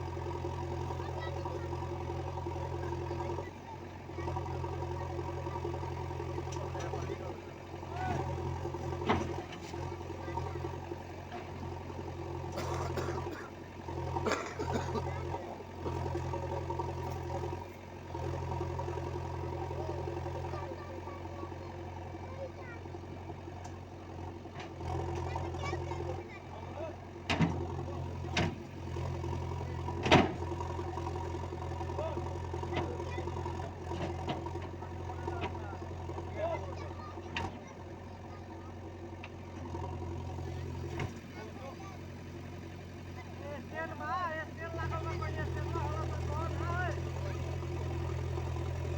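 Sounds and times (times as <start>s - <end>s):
heavy machine engine running: 0.0s - 48.9s
clatters: 27.2s - 48.9s.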